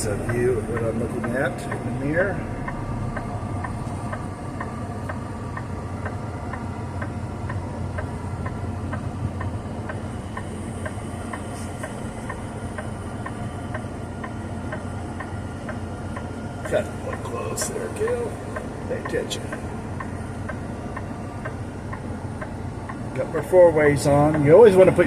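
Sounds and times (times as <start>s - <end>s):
diesel engine rumble: 0.0s - 25.0s
hazard flasher relay ticking: 0.0s - 25.0s.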